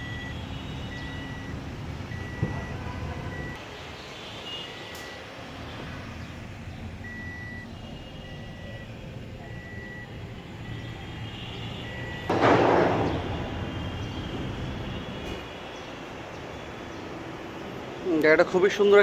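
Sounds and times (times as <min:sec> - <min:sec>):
reversing alarm beeping: 0:00.0 - 0:03.6, 0:04.7 - 0:05.3, 0:07.0 - 0:15.4
low traffic rumble: 0:00.0 - 0:19.0.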